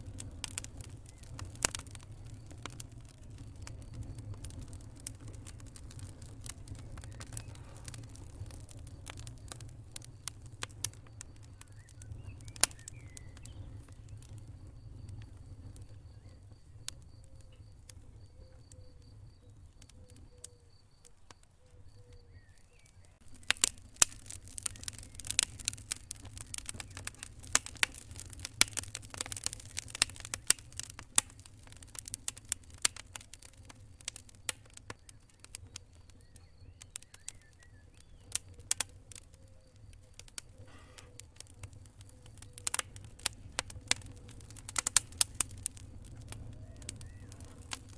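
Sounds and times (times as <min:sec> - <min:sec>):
low rumble of flames: 0:00.0 - 0:47.9
wood fire crackling and popping: 0:00.0 - 0:47.9.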